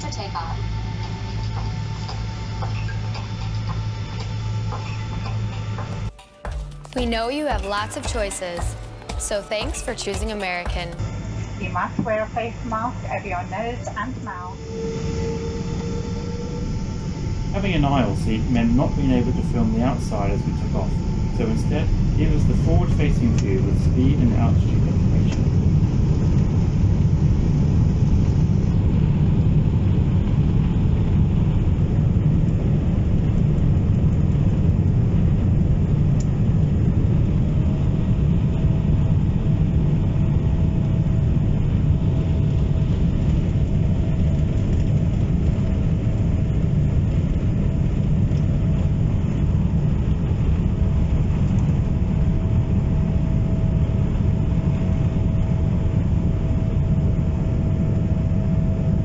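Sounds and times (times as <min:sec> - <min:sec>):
jet engines rumbling: 0:00.0 - 0:06.2, 0:07.0 - 0:59.0
thin steady whine: 0:00.0 - 0:59.0.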